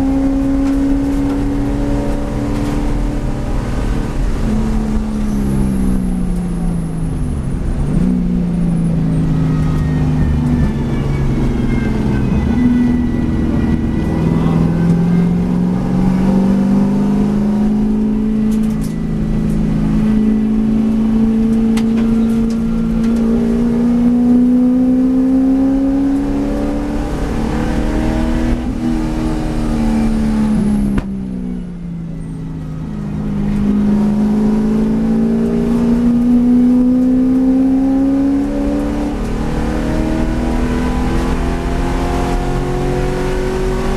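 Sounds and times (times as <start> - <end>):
race car engine: 0.0 - 43.9.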